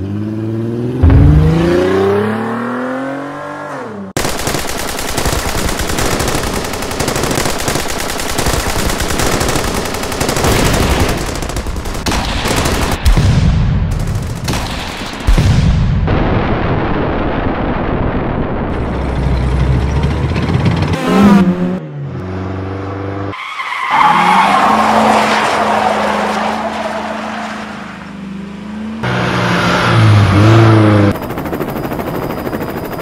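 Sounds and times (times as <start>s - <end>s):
engine drone: 0.0s - 3.0s, 18.7s - 23.3s
engine revving: 0.0s - 4.2s, 18.7s - 23.4s, 27.6s - 31.2s
tyres skidding: 18.8s - 31.0s.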